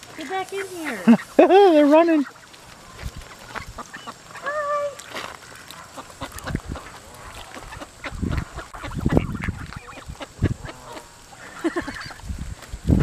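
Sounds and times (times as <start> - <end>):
geese honking: 0.2 - 12.3.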